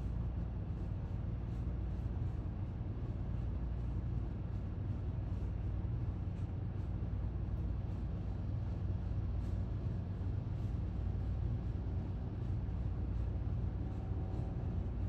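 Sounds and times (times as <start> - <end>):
low outdoor background rumble: 0.0 - 15.0.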